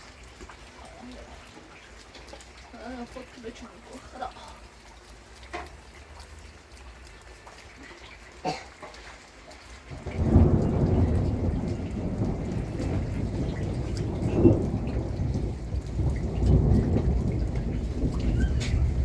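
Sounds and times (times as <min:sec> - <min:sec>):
heavy rain: 0:00.0 - 0:19.0
thunder rumbling: 0:09.8 - 0:19.0.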